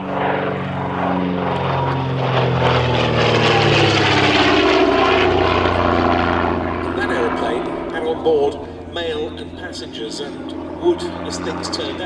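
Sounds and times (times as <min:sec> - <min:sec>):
propeller aircraft flying past: 0:00.0 - 0:12.0.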